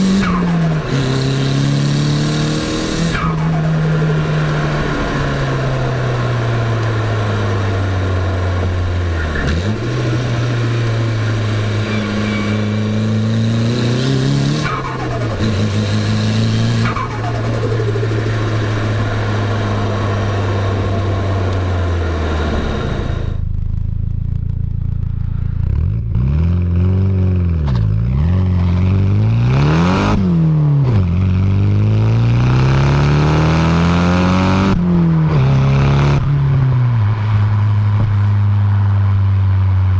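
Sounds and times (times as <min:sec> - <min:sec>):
car engine accelerating through gears: 0:00.0 - 0:23.8, 0:24.6 - 0:39.9.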